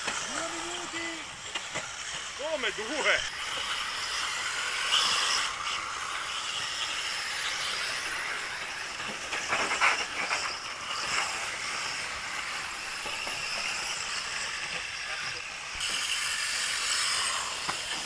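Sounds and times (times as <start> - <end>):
rc car motors whining: 0.0 - 18.0.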